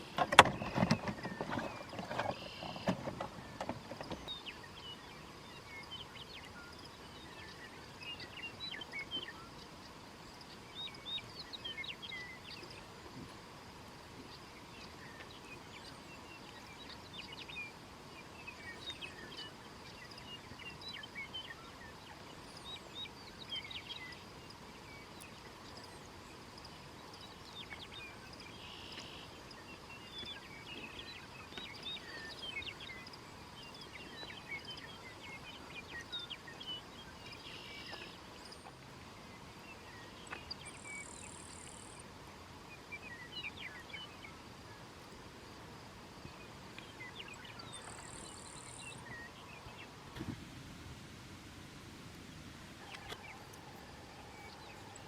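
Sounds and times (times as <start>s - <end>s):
birds chirping: 0.0s - 13.3s, 14.2s - 50.3s.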